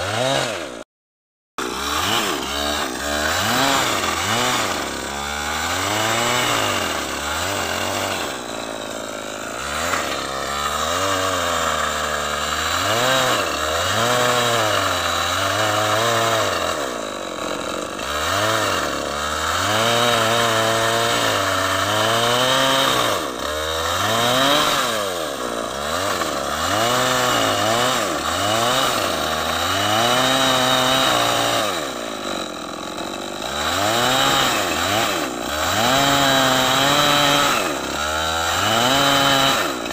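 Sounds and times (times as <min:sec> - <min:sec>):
chainsaw cutting wood: 0:00.0 - 0:00.9, 0:01.6 - 0:39.9.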